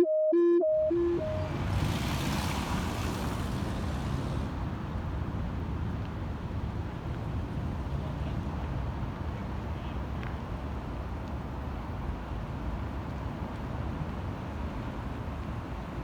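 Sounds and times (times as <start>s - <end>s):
two-note electronic tone: 0.0s - 1.5s
road vehicle rumble: 0.9s - 16.0s
hiss: 1.8s - 4.7s.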